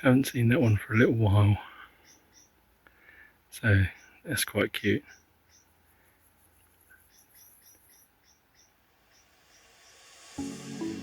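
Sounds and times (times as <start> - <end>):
faint high chirps: 5.0 - 11.0.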